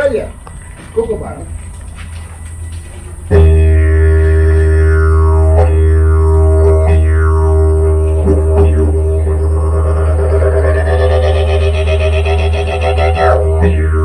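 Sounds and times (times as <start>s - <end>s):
didgeridoo drone: 0.0s - 14.0s
voiced calls through didgeridoo: 3.1s - 14.0s.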